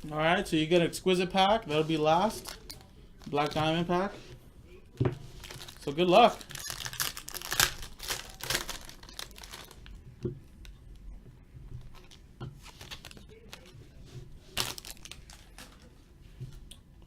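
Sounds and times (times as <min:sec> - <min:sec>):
wrapper torn open and crinkled: 0:05.4 - 0:09.9, 0:12.6 - 0:13.7, 0:14.5 - 0:15.8.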